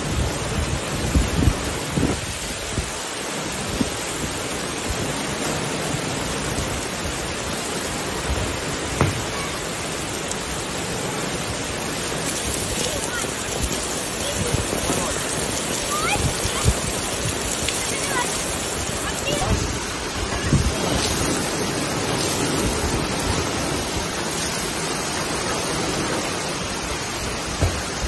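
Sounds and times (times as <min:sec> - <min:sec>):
heavy rain pouring: 0:00.0 - 0:28.0
short low thumps: 0:27.5 - 0:28.0.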